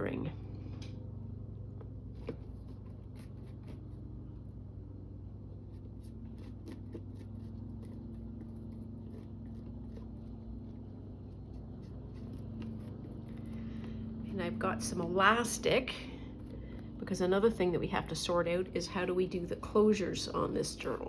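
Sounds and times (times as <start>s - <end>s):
low electrical hum: 0.0s - 21.0s
paper scratching and rustling: 2.1s - 4.5s, 5.4s - 14.2s.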